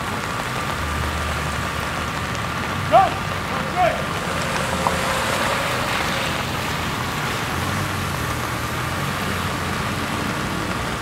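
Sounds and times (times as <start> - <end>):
motor vehicle running: 0.2 - 10.9
faint high tone: 3.5 - 7.4.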